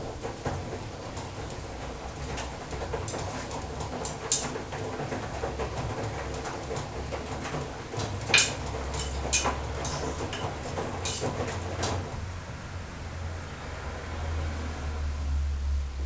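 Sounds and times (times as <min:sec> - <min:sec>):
drum knocking and clicking: 0:00.0 - 0:12.2
washing machine hum: 0:00.0 - 0:16.0.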